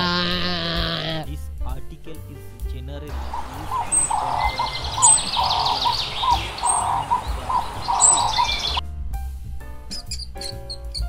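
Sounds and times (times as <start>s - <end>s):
lower rasping bird calls: 3.1s - 8.8s, 9.9s - 11.0s.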